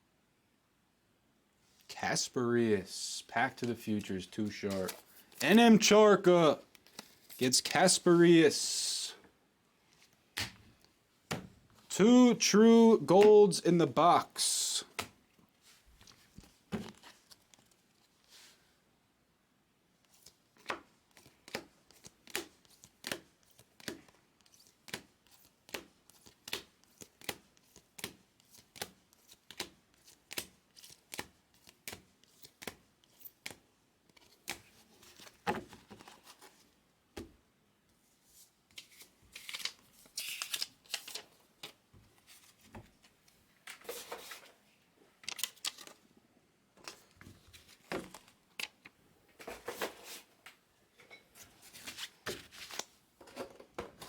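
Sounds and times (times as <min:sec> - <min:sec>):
papery rustles: 0:04.7 - 0:05.4.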